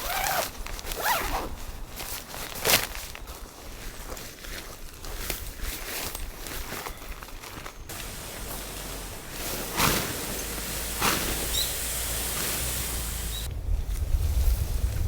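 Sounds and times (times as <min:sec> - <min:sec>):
wind buffeting microphone: 0:07.9 - 0:15.0
wind rushing: 0:07.9 - 0:15.0.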